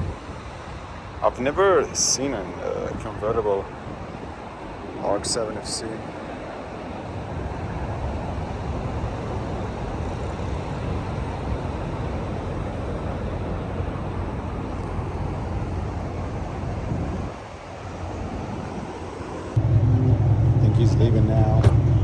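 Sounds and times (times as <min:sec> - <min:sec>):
car engine through loud exhaust: 0:19.5 - 0:22.0.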